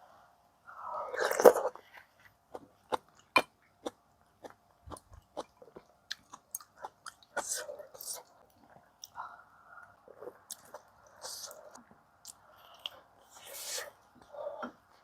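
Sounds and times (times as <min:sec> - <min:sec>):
wet chewing: 0:01.2 - 0:09.2.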